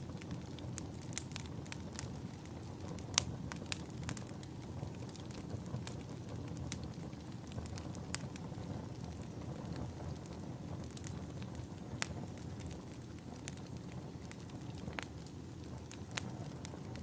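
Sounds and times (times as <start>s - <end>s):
fire crackles and pops: 0.0s - 17.0s
fireplace fire rumble: 0.0s - 17.0s.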